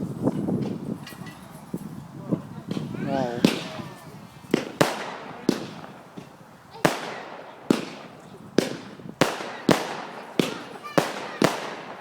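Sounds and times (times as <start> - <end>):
fireworks bursting: 2.6 - 12.0.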